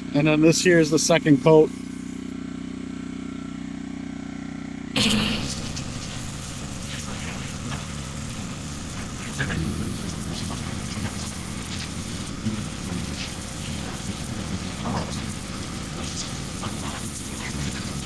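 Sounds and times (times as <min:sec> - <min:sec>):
pressure washer spraying metal: 0:05.0 - 0:18.0.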